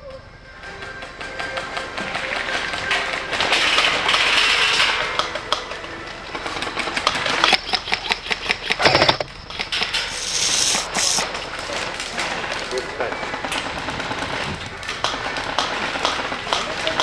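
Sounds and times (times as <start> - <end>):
rustling hiss: 10.0 - 11.4.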